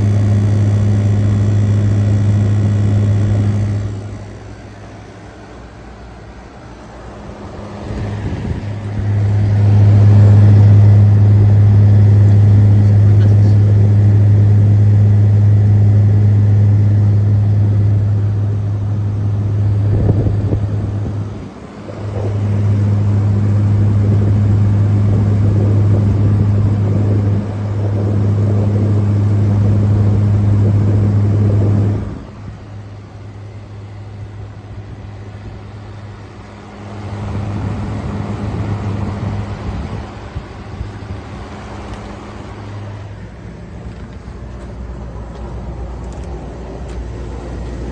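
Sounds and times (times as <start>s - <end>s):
air conditioner compressor hum: 0.0s - 47.9s
condenser fan rushing: 0.0s - 47.9s.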